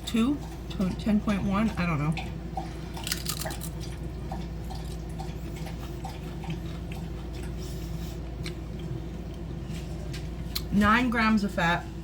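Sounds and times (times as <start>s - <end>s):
low room hum: 0.0s - 12.0s
chewing chips crunches: 2.9s - 4.0s.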